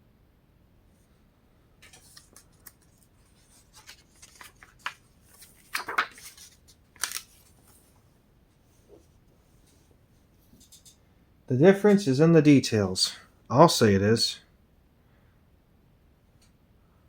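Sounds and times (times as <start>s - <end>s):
paper pages rustling: 1.8s - 8.1s.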